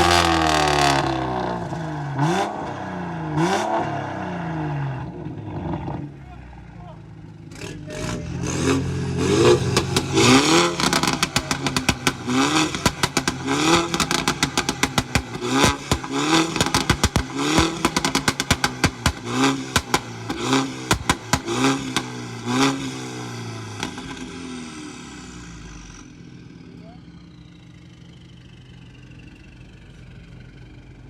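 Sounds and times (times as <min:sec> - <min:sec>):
car engine revving: 0:00.0 - 0:29.0
exhaust pops and bangs: 0:09.4 - 0:22.9.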